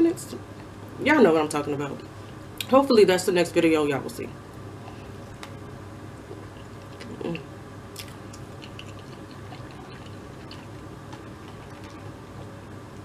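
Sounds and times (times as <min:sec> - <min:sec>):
steady low hum: 0:00.0 - 0:13.0
chewing mouth sounds: 0:08.0 - 0:12.1.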